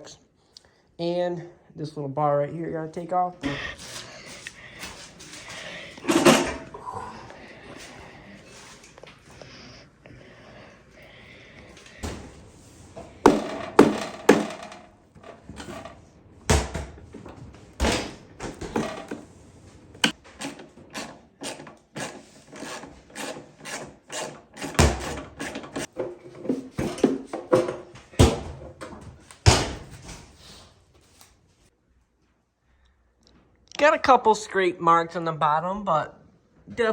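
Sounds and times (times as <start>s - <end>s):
tools and metal parts clanking: 6.0s - 6.7s.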